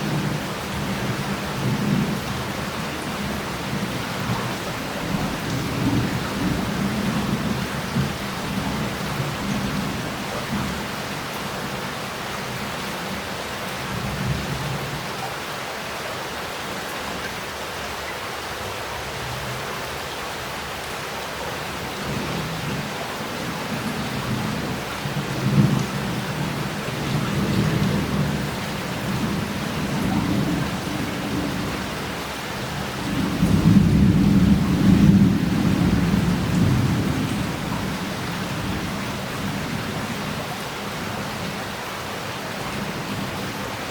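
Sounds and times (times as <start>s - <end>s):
heavy rain falling: 0.0s - 43.9s
rolling thunder: 32.8s - 39.9s.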